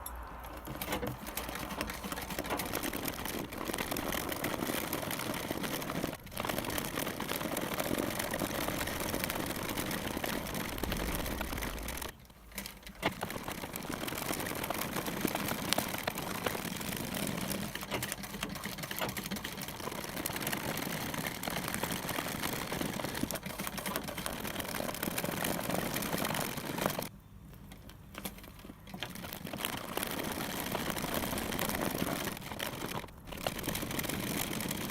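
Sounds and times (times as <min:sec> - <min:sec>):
thread rasping as pulled: 0:00.0 - 0:27.1
needle poking through fabric: 0:00.4 - 0:06.9.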